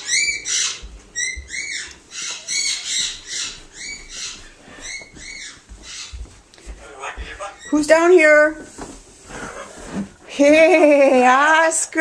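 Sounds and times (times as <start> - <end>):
parrot chirping: 0.0 - 6.2, 6.8 - 8.1.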